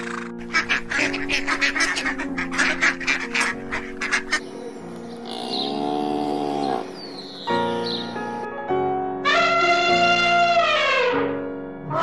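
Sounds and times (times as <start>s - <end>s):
ducks quacking: 0.0s - 7.0s
background music: 0.0s - 12.0s
cow mooing: 5.2s - 7.0s.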